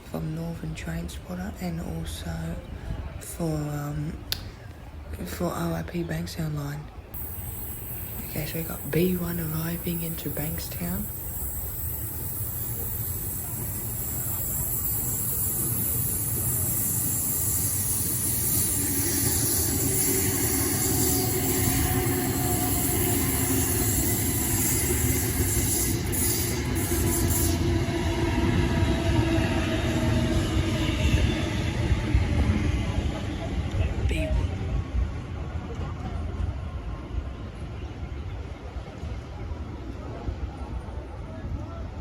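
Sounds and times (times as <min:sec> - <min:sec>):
electric train pulling in: 0:07.2 - 0:40.6.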